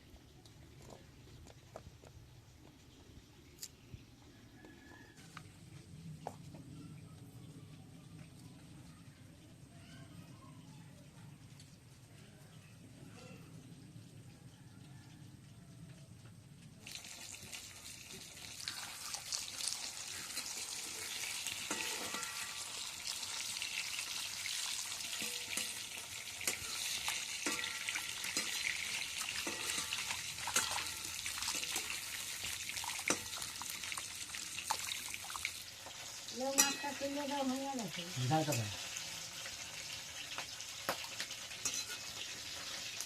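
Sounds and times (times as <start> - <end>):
fish sizzling in hot oil: 16.8 - 43.0.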